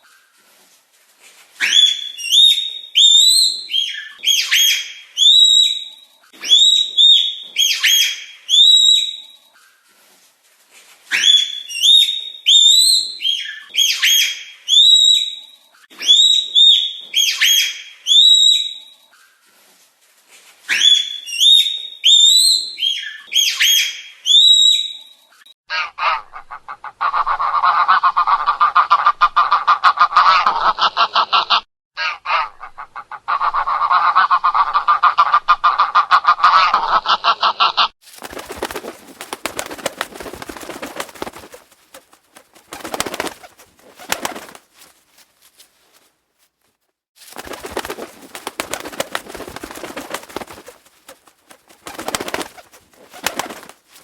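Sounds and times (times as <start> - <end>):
fast buzzy bird calls: 38.2 - 44.9, 47.2 - 54.0
birds calling: 38.2 - 45.0, 47.2 - 54.0.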